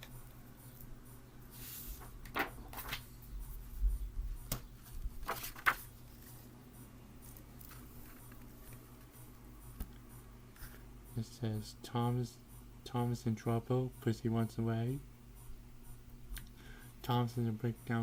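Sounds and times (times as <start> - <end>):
book pages rustling: 1.6 - 3.1, 4.5 - 6.5, 7.2 - 9.1.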